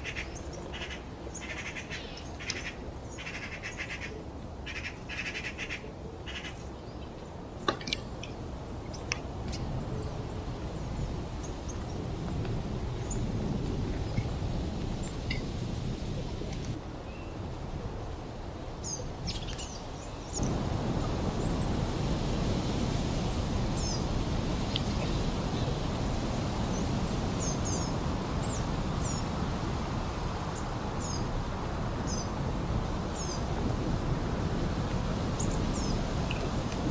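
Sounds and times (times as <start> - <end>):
flowing water: 20.4 - 36.9.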